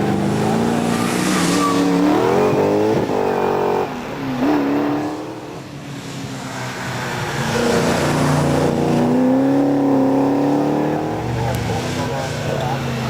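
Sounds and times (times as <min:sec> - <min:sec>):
race car engine accelerating: 0:07.3 - 0:13.0.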